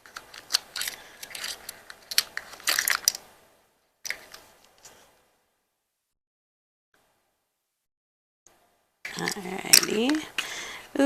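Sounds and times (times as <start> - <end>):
packaging crinkling and rustling: 0.0 - 3.2.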